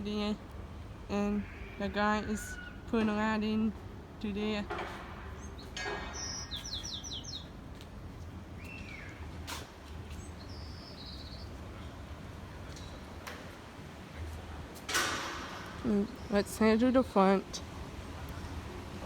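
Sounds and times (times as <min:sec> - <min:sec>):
small birds chirping: 0:05.3 - 0:07.6, 0:08.5 - 0:09.4, 0:10.0 - 0:13.2, 0:15.8 - 0:16.8.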